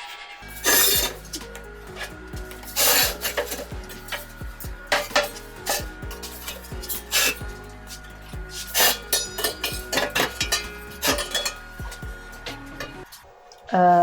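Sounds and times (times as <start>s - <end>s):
background music: 0.0s - 14.0s
metal parts clanking: 0.5s - 13.0s.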